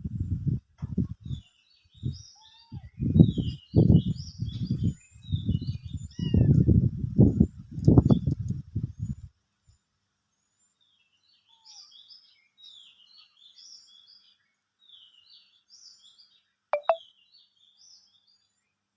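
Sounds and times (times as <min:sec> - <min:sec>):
birds chirping: 0:16.8 - 0:17.0.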